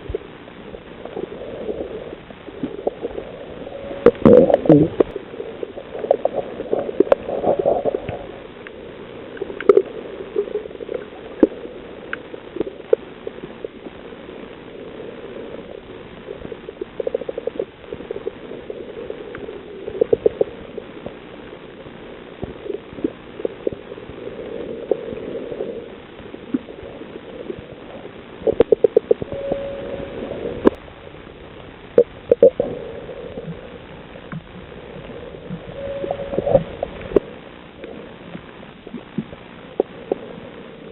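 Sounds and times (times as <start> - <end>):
underwater gurgling hiss: 1.0 - 13.9
underwater clicks and pops: 8.0 - 9.9
brief underwater tones: 35.7 - 37.3.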